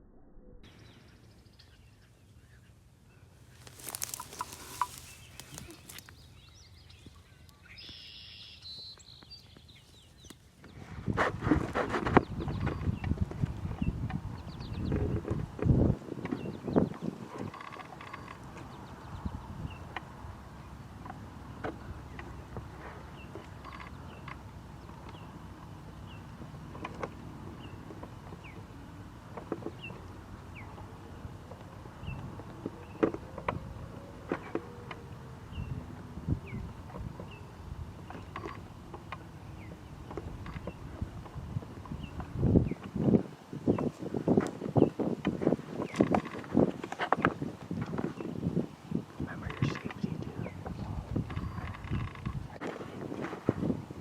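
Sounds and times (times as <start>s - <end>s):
bird chirping: 0.6s - 10.5s
songbird chirps and trills: 0.6s - 10.8s, 12.2s - 47.0s, 47.8s - 53.0s
small ticks and rustles: 3.4s - 10.8s, 11.6s - 20.2s, 20.8s - 35.3s, 36.6s - 48.4s, 49.0s - 53.6s
high bird song phrase: 4.0s - 10.2s, 49.3s - 52.1s
steady low rumble: 49.2s - 52.6s.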